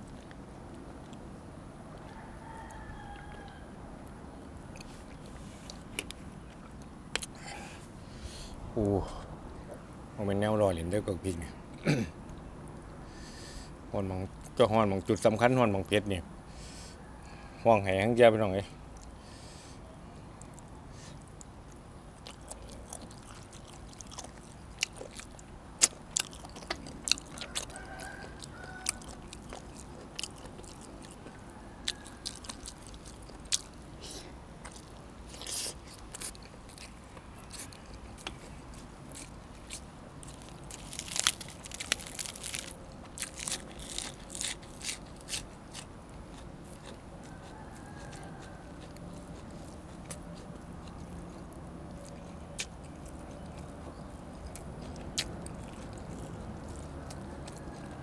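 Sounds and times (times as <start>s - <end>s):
person chewing crunchy food: 20.4s - 58.0s.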